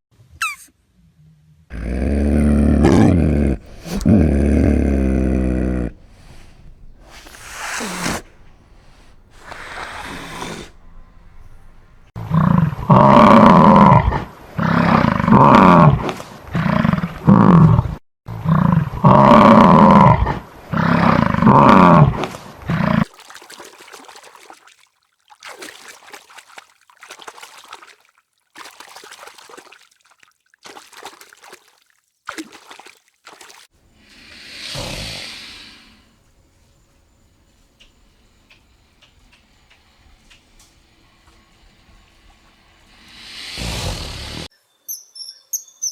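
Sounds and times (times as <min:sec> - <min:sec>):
faint rustling: 0:05.8 - 0:12.1.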